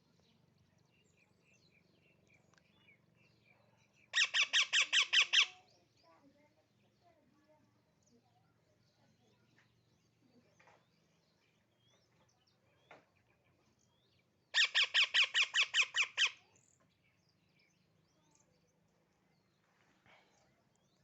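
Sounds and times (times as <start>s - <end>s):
parrot chirping and calling: 4.1s - 5.6s, 14.5s - 16.4s.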